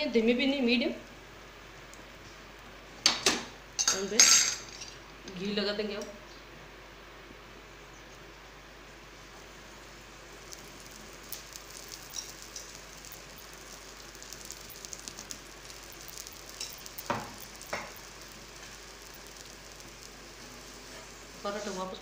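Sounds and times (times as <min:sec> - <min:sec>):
ghee sizzling and popping: 0:08.9 - 0:22.0.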